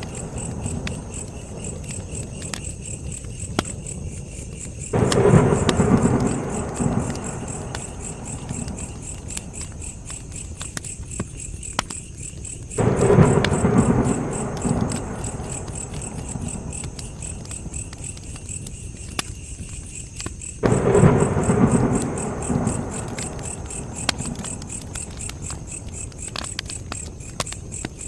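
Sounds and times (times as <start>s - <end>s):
crickets chirping: 0.0s - 28.0s
sharp pops from fire: 0.0s - 28.0s
wood fire crackling: 0.0s - 28.0s
low rumbling surge: 12.8s - 16.7s, 20.6s - 24.6s.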